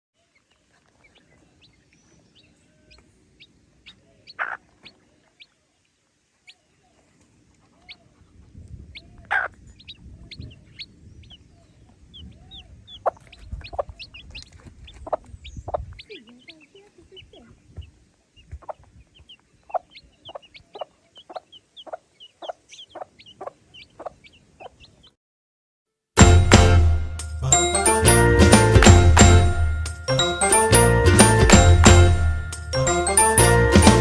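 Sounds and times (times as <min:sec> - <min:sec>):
chicks peeping: 0:00.2 - 0:05.6, 0:06.4 - 0:25.2
hen clucking: 0:00.7 - 0:05.6, 0:07.6 - 0:25.1.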